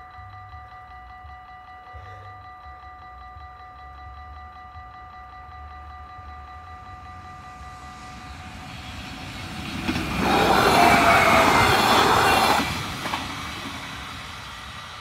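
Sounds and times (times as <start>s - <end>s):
level-crossing warning bells: 0.0s - 15.0s
passenger train passing: 6.1s - 15.0s
train wheel squeal: 7.3s - 15.0s.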